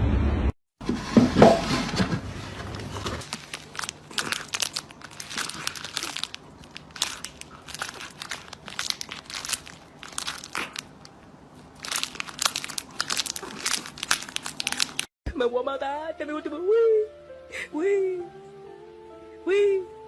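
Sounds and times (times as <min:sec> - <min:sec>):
crinkling and crumpling rustle: 0:01.6 - 0:15.1.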